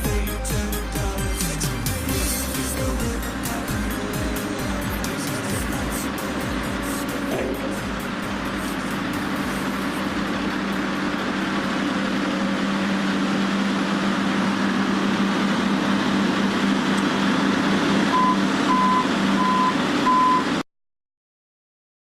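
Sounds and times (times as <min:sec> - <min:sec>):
excavator engine running: 0:00.0 - 0:20.6
travel alarm beeps: 0:18.1 - 0:20.6.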